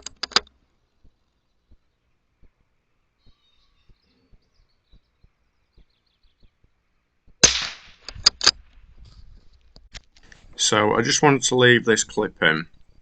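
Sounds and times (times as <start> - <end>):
faint bird chirps: 0.8 - 7.1.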